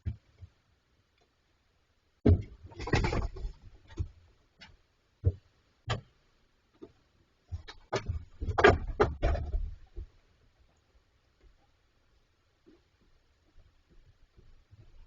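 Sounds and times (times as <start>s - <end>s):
bears knocking on metal fridge: 7.5s - 10.1s.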